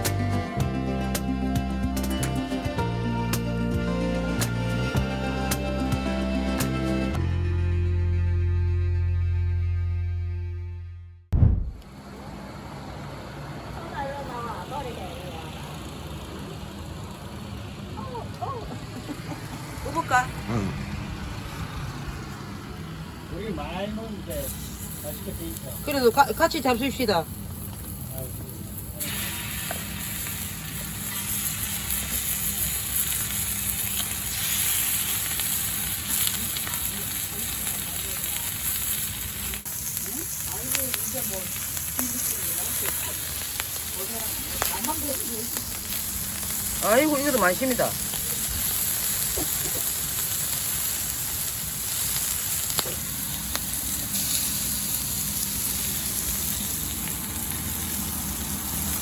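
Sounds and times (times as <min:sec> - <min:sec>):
food sizzling on a griddle: 0:23.3 - 0:59.0
sharp crackles: 0:24.3 - 0:59.0.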